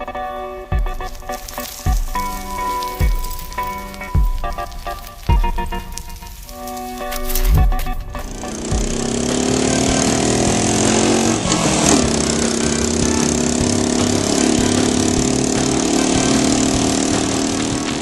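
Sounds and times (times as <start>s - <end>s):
steady hiss: 0.0s - 10.5s
motorcycle engine running: 0.7s - 18.0s.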